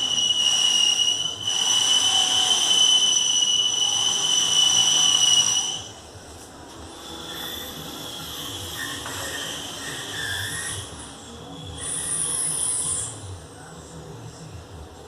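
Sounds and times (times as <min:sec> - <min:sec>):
power tool whining: 0:00.0 - 0:06.0.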